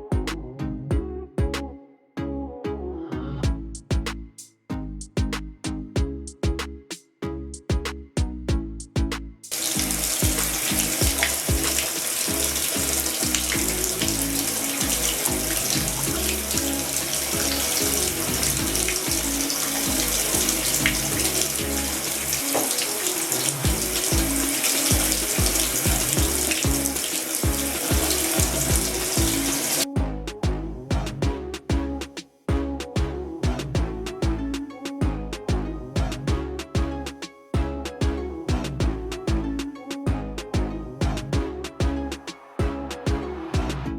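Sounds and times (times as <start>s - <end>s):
background music with a beat: 0.0s - 1.7s, 3.4s - 43.9s
shower water spraying: 9.5s - 29.8s.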